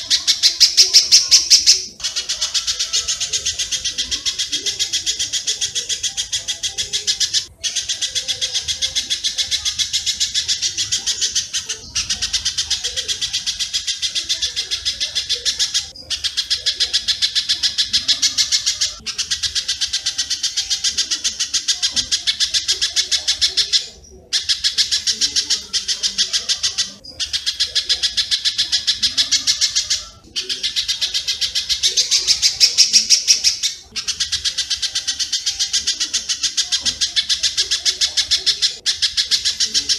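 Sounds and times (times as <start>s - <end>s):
birds chattering: 0.0s - 39.9s.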